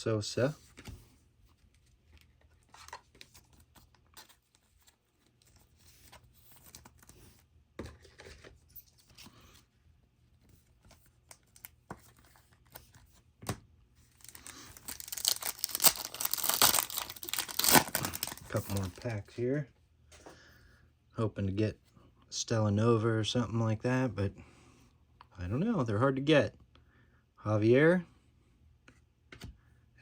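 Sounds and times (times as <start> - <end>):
trading cards handled: 0.6 - 9.6, 10.4 - 19.4
card pack wrapper tearing: 14.1 - 19.1.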